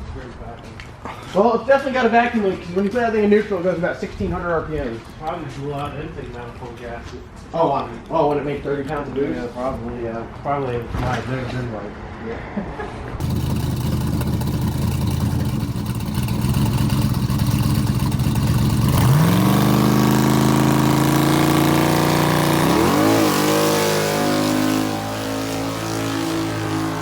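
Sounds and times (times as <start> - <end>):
car engine running and revving: 13.2 - 27.0.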